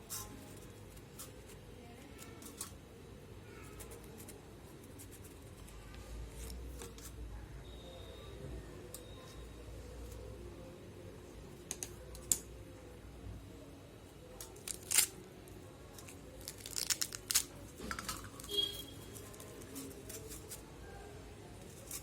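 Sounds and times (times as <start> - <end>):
pomegranate cracking and tearing: 14.4 - 15.3, 15.9 - 20.6.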